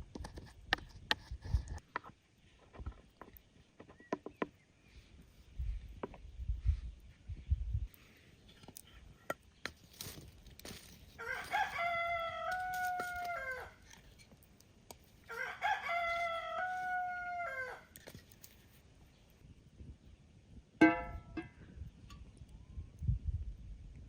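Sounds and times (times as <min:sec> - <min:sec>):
rooster crowing: 0:11.2 - 0:13.8, 0:15.3 - 0:17.9.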